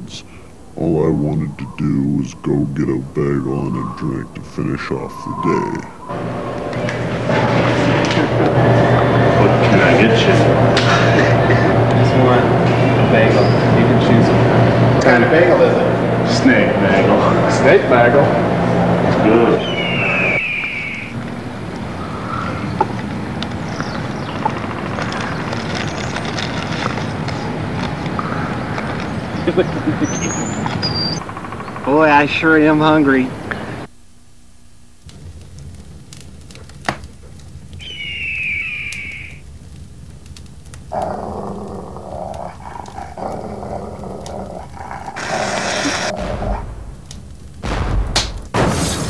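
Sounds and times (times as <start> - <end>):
vehicle low rumble: 0.0 - 20.4, 21.1 - 32.1, 46.1 - 48.6
rough growling: 40.9 - 47.3
harsh hissing rasp: 44.6 - 46.4.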